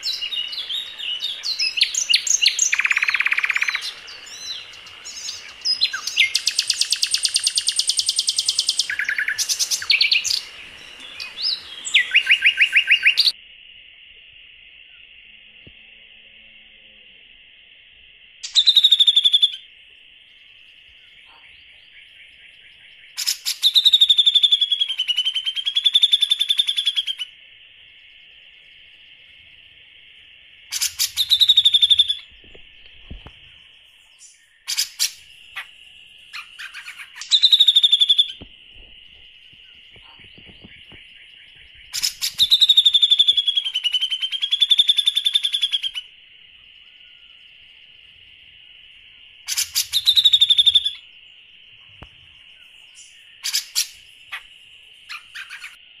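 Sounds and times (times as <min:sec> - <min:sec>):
songbird whistle and rattling trill: 0:00.0 - 0:13.4, 0:18.4 - 0:19.7, 0:21.8 - 0:27.4, 0:30.6 - 0:47.6, 0:49.4 - 0:55.8.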